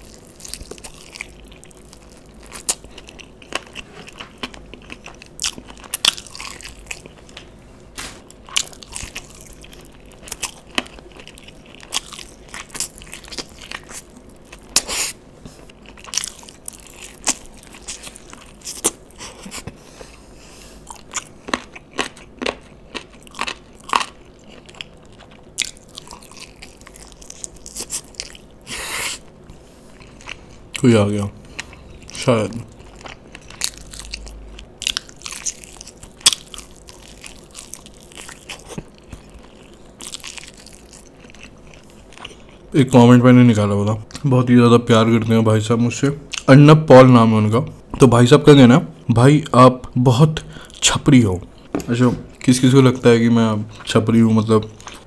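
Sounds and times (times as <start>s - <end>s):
person biting and chewing food: 0.0s - 20.2s, 20.8s - 30.9s, 31.5s - 42.7s.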